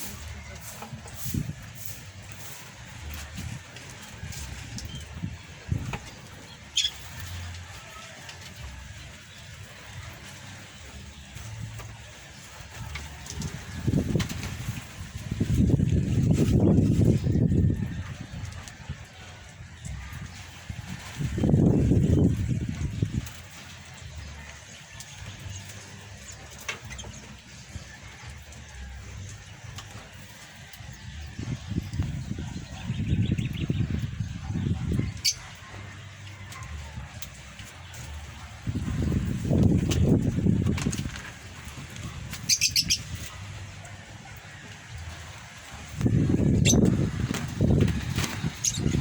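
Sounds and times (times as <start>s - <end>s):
small pet birds chirping: 6.6s - 7.4s, 31.8s - 35.6s, 42.3s - 43.4s, 46.1s - 49.0s
bird chirps: 6.7s - 7.0s, 35.1s - 35.5s, 42.5s - 43.1s.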